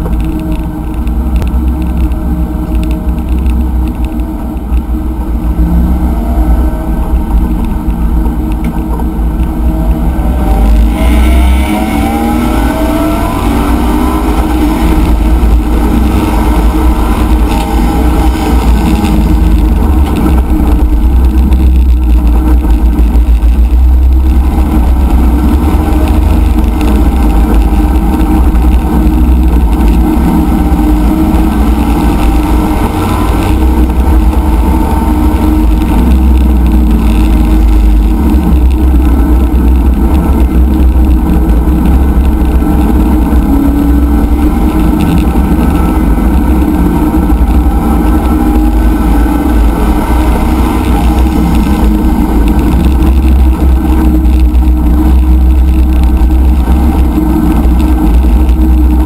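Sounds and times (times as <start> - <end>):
race car engine accelerating: 5.2 - 59.0.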